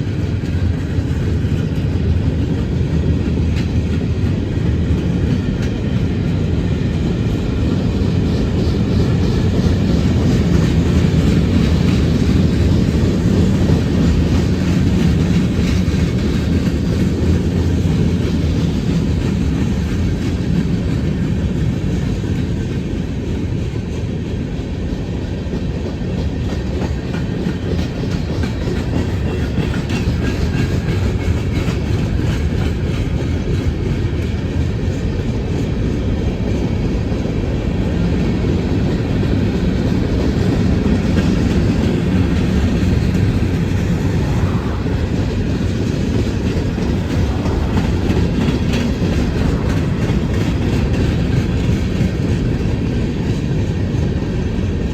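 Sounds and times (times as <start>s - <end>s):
train passing close: 0.0s - 54.9s
wheels clicking over rail joints: 25.6s - 54.9s.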